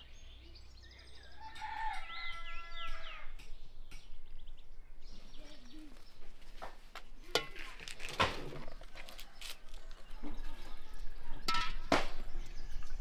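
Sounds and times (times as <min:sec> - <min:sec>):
small birds chirping faintly: 0:00.0 - 0:13.0
rooster crowing: 0:01.2 - 0:03.4.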